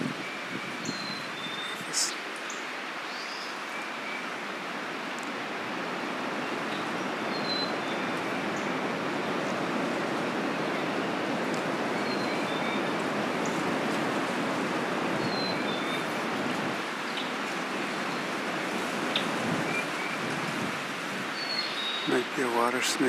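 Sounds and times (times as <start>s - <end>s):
rushing outdoor noise: 0.0s - 23.0s.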